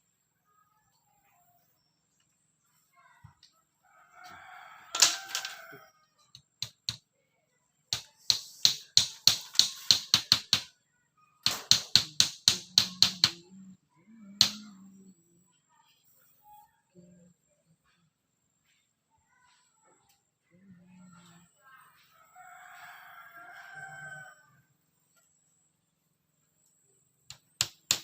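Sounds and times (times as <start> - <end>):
hammer knocking on bamboo: 6.4 - 7.0, 7.9 - 10.7, 11.5 - 13.4, 14.4 - 14.8, 27.3 - 28.0.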